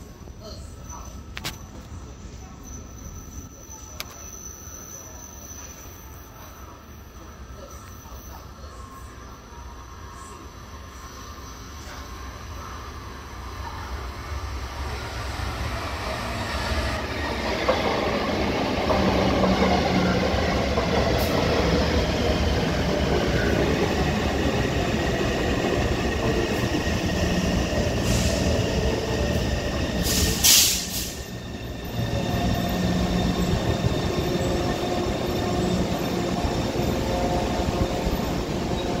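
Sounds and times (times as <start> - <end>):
sharp hiss: 30.0 - 31.4.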